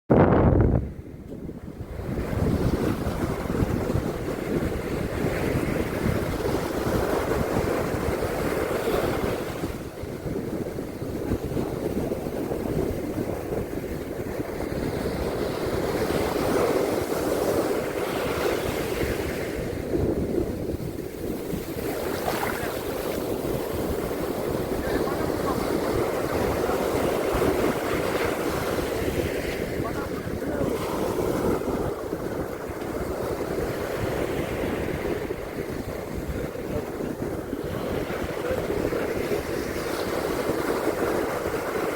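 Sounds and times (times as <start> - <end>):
wind buffeting microphone: 0.1 - 41.9
ocean surf washing onto beach: 0.8 - 41.9.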